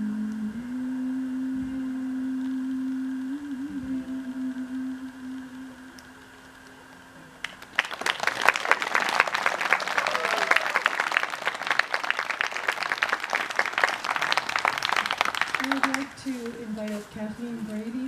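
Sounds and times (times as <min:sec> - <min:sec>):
held musical tone: 0:00.0 - 0:09.8, 0:12.6 - 0:18.0
audience applauding: 0:07.4 - 0:16.5
person whooping: 0:08.9 - 0:11.2.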